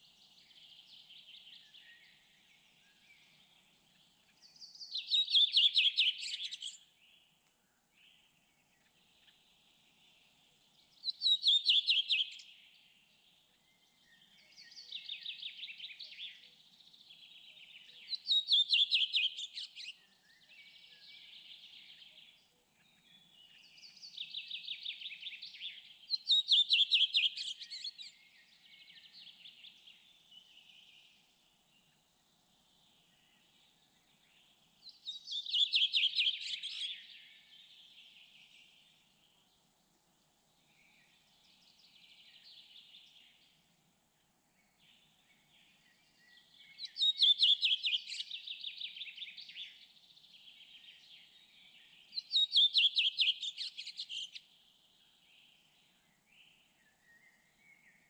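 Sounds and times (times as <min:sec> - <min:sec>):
songbird trilling and warbling: 0:00.3 - 0:06.9, 0:17.0 - 0:31.1, 0:33.2 - 0:38.8, 0:45.7 - 0:54.6.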